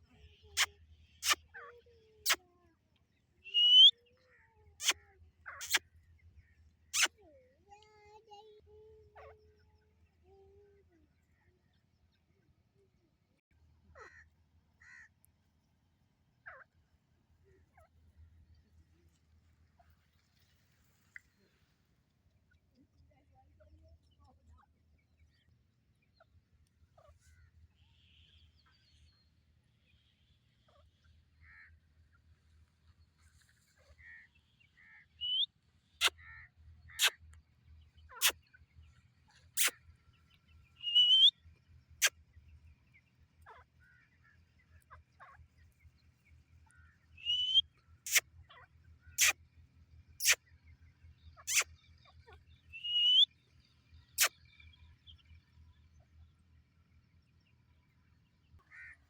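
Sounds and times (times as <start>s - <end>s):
francolin calling: 3.5s - 3.9s, 35.2s - 36.2s, 40.8s - 41.3s, 47.2s - 48.2s, 51.5s - 51.7s, 52.7s - 53.3s.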